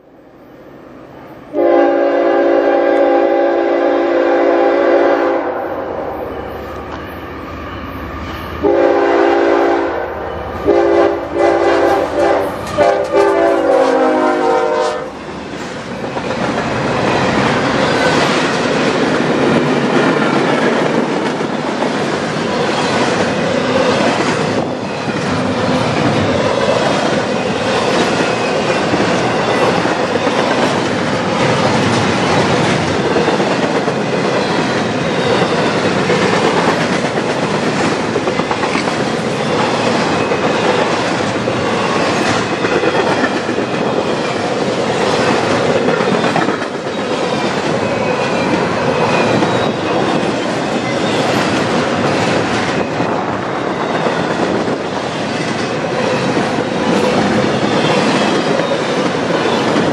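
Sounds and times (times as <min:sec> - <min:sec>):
locomotive air horn blasts: 0:01.5 - 0:06.1, 0:08.6 - 0:15.1
train wheels clicking over rail joints: 0:15.2 - 0:59.9.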